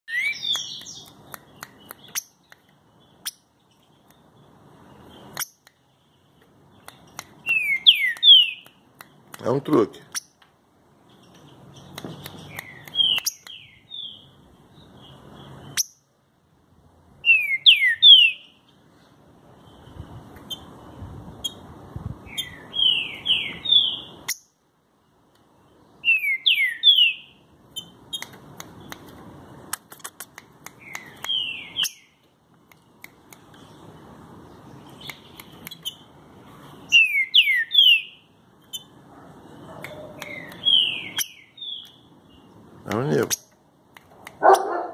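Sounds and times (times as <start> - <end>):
bird singing whistled notes: 0.1 - 2.4, 7.4 - 8.8, 11.8 - 16.1, 17.2 - 18.6, 22.2 - 24.5, 26.0 - 28.2, 30.8 - 32.2, 36.9 - 38.9, 39.9 - 42.5.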